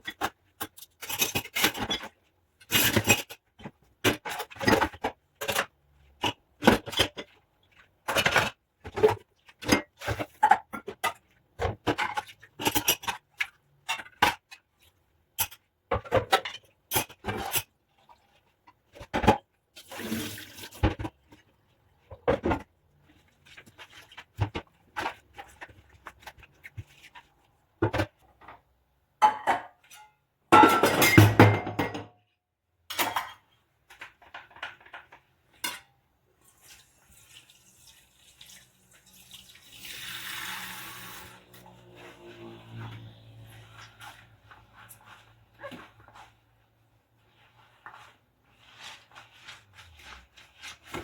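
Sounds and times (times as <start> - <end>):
dishes clinking and clattering: 29.2 - 32.1, 34.2 - 35.9.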